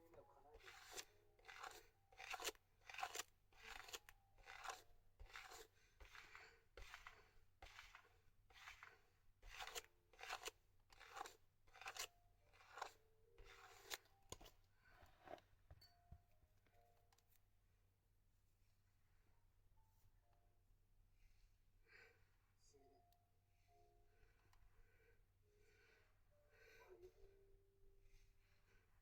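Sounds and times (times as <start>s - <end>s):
brush scraping through hair: 0.6s - 15.4s.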